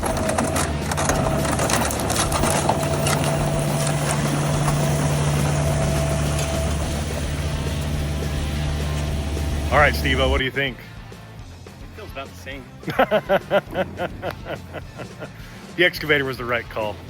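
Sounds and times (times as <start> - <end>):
excavator diesel engine running: 0.0 - 10.4
thin steady whine: 0.0 - 10.4.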